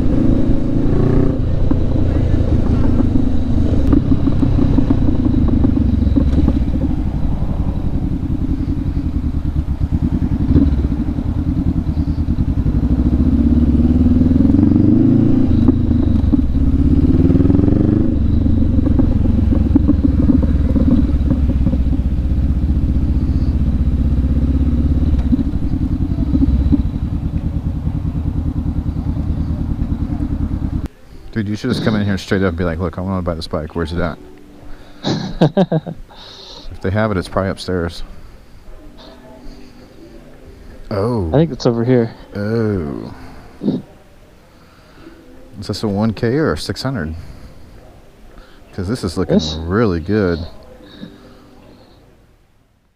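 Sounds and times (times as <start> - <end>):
motorcycle engine accelerating: 0.0 - 30.9
road and wind noise: 0.0 - 52.9.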